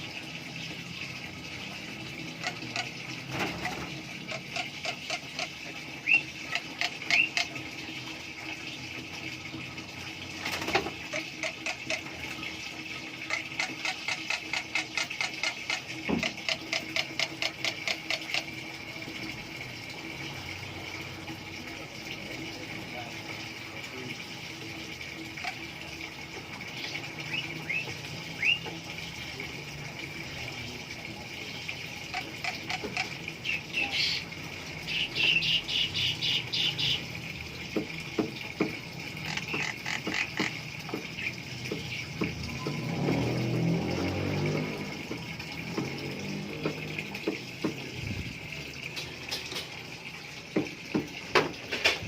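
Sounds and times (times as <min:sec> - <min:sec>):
myna chattering calls: 0:32.1 - 0:34.3.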